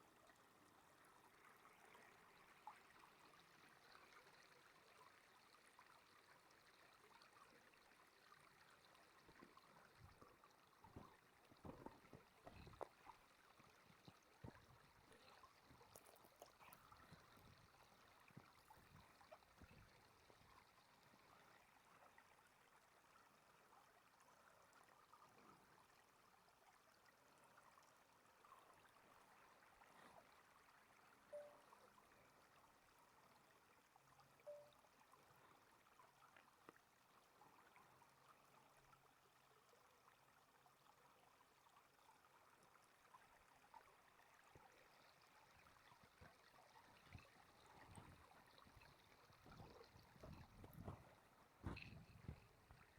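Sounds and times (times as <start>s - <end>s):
soft crackles: 9.0s - 21.5s, 45.8s - 52.9s.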